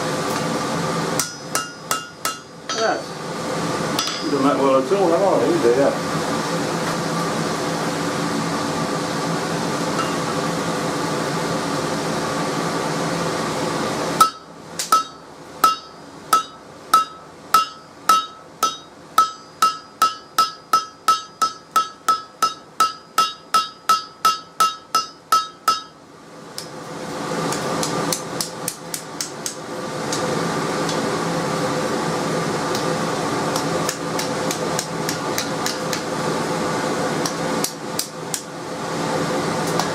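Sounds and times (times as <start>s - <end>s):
steady hum: 0.0s - 39.9s
hammer striking steel on anvil: 1.2s - 3.0s, 4.0s - 4.6s, 10.0s - 10.4s, 14.2s - 26.0s, 27.5s - 29.6s, 33.5s - 36.1s.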